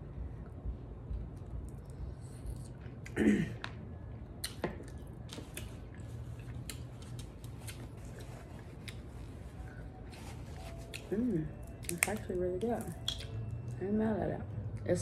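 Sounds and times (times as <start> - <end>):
wet chewing with mouth clicks: 4.4 - 9.9, 10.6 - 13.8.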